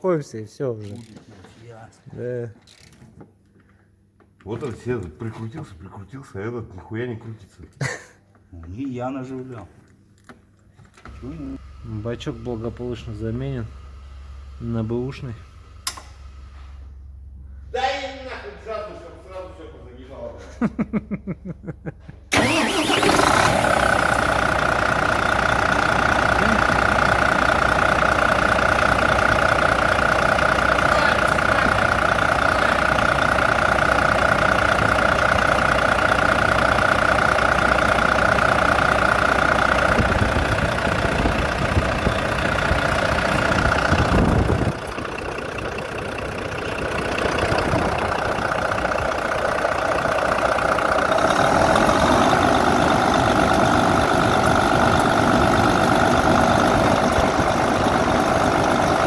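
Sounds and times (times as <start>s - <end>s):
truck diesel engine idling: 11.1s - 16.5s, 22.3s - 59.0s.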